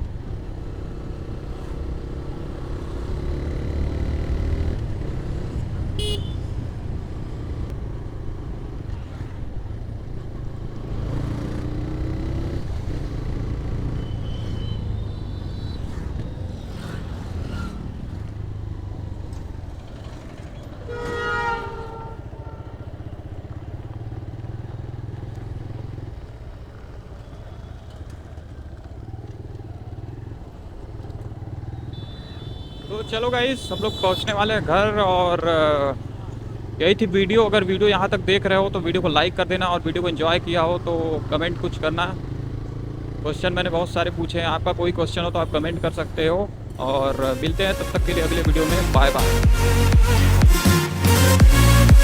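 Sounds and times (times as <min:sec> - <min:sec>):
motorcycle engine running: 0:00.0 - 0:39.0, 0:39.7 - 0:52.0
road and wind noise: 0:00.0 - 0:52.0
vehicle horns: 0:05.4 - 0:06.7, 0:13.2 - 0:18.2, 0:20.1 - 0:24.3, 0:31.8 - 0:36.8, 0:46.8 - 0:52.0.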